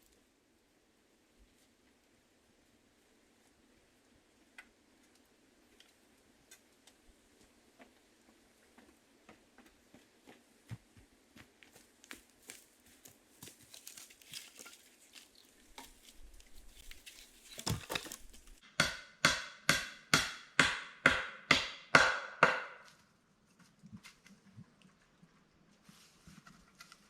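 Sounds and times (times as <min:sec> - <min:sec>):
hand tool striking wood: 0:17.6 - 0:22.9.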